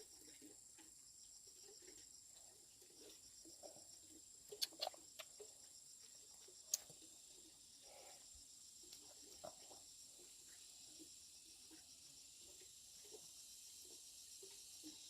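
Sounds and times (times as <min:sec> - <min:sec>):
insects chirring: 0:00.0 - 0:15.0
sharp clicks: 0:04.5 - 0:05.3.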